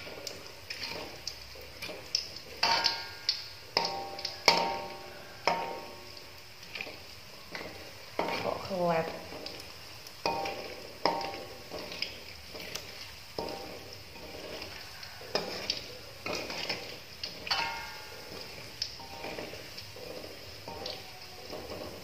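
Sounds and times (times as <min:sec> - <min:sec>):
sausages sizzling in hot oil: 0:00.0 - 0:22.0
metal spatula clinking on wok: 0:02.6 - 0:05.9, 0:10.2 - 0:11.4, 0:17.4 - 0:22.0.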